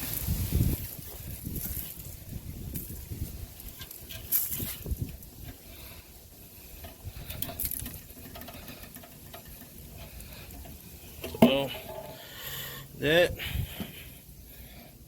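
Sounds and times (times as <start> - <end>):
handling clicks and scrapes: 0.0 - 6.1, 6.7 - 12.2.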